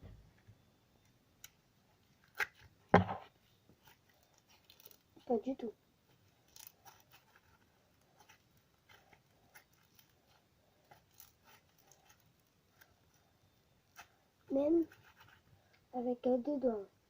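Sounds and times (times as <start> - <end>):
slime clicking and crackling: 3.8 - 5.2, 6.4 - 13.0.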